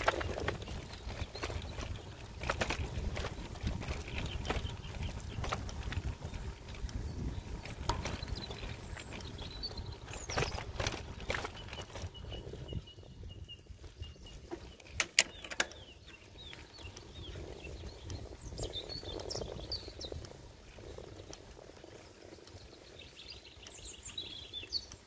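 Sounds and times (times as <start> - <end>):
road rumble: 0.0 - 12.8
songbirds chirping: 0.0 - 25.0
wind on microphone: 0.0 - 25.0.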